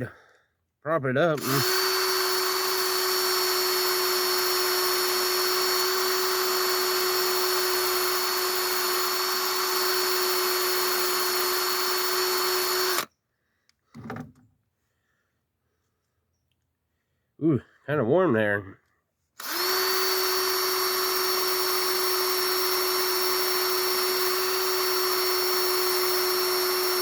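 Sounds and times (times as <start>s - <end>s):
drill spinning wire wheel on metal: 1.4s - 13.1s, 19.4s - 27.0s.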